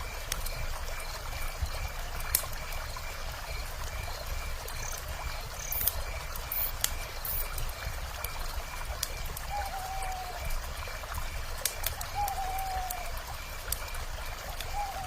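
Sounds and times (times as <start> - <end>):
campfire crackling: 0.0 - 15.0
river running: 0.0 - 15.0.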